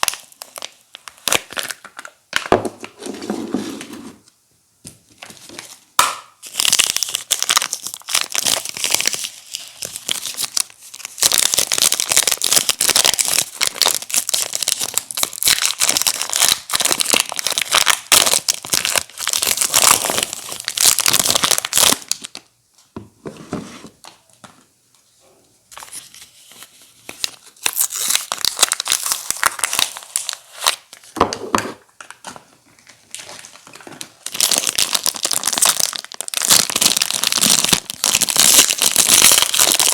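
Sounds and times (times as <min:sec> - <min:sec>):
wrappers tearing and crinkling: 0:06.0 - 0:22.4, 0:25.8 - 0:31.1, 0:33.1 - 0:39.9.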